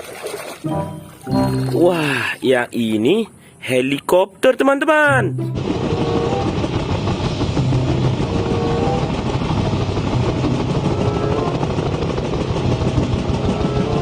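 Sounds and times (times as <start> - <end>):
helicopter engine and rotor: 5.6 - 14.0.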